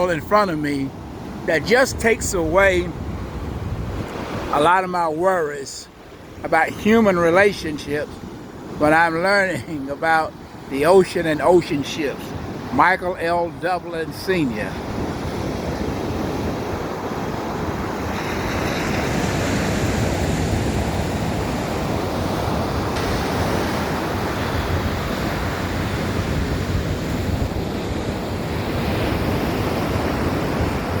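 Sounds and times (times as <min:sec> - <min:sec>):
wind buffeting microphone: 0:00.0 - 0:04.8, 0:14.1 - 0:31.0
surf breaking on beach: 0:00.0 - 0:08.1, 0:08.8 - 0:31.0.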